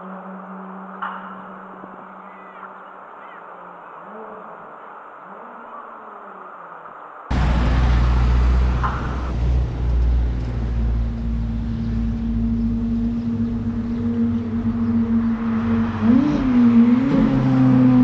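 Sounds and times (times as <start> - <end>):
car engine rumbling: 7.3 - 18.0.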